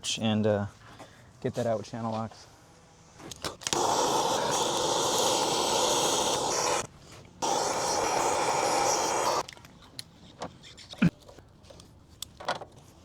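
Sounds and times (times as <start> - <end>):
torch flame hissing: 3.6 - 9.5.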